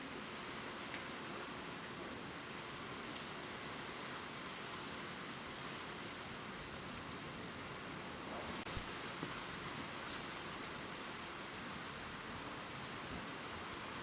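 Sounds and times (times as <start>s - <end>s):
gentle rain pattering on leaves: 0.0s - 14.0s.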